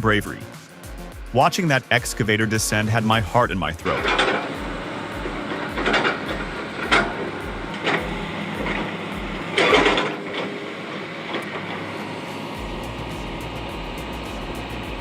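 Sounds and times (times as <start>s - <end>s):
heavy machinery pulsing: 0.0s - 15.0s
sharp metallic clanks: 3.8s - 10.6s.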